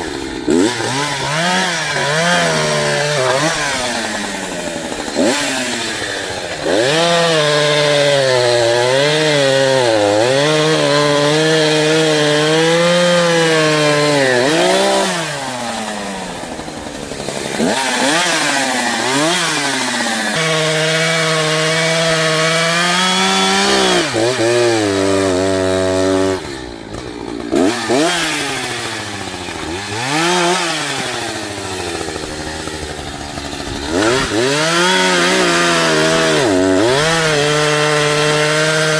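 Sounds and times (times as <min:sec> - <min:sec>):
chainsaw cutting tree: 0:00.0 - 0:38.9.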